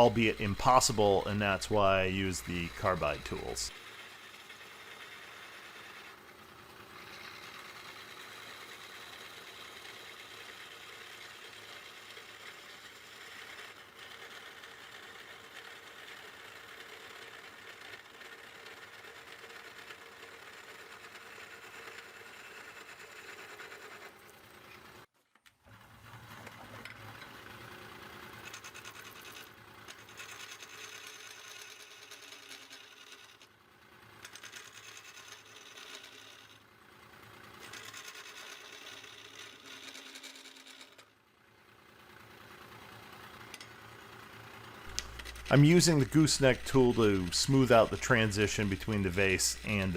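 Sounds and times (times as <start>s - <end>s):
turning tool scraping wood: 0.0s - 6.2s, 6.8s - 24.9s, 34.3s - 36.6s, 37.6s - 41.1s, 44.8s - 49.9s
wood lathe running: 0.0s - 24.8s, 26.3s - 33.4s, 34.2s - 36.6s, 37.4s - 41.0s, 42.2s - 49.9s.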